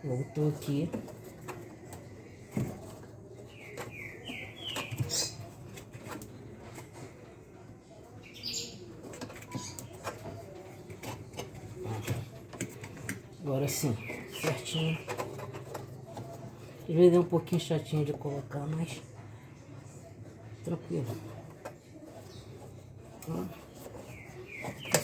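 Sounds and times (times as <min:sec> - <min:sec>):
bird chirping: 0:03.4 - 0:05.6, 0:13.5 - 0:15.8, 0:23.3 - 0:25.0.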